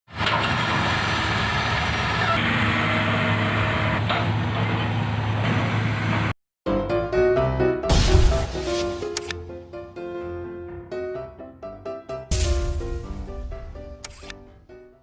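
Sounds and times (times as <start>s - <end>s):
diesel engine running: 0.1s - 6.4s.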